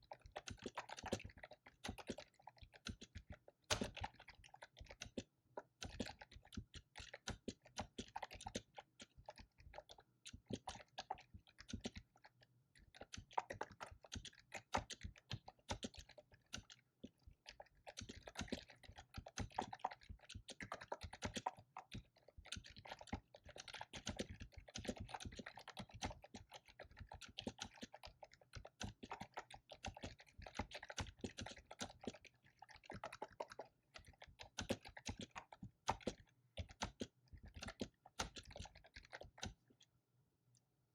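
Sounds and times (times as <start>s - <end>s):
fast keyboard typing: 17.9s - 39.6s.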